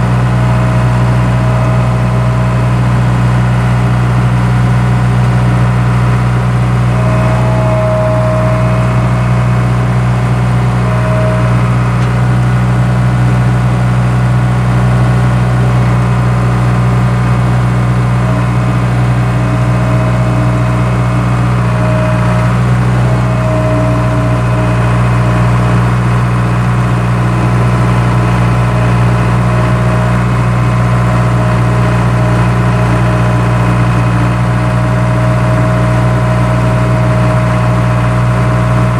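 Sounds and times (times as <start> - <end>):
skid steer engine running: 0.0 - 38.9
faint whine: 6.6 - 13.7.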